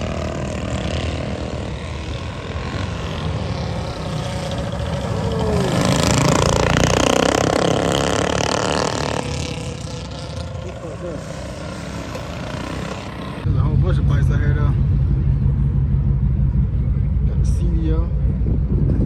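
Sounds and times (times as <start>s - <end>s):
motorcycle engine running: 0.0s - 19.0s
wind noise: 12.3s - 19.0s.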